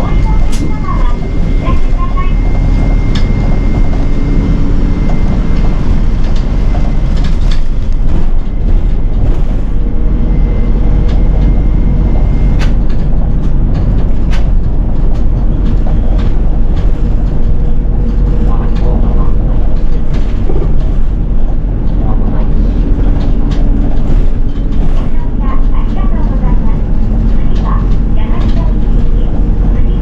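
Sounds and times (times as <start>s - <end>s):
bus engine and road rumble: 0.0s - 30.0s.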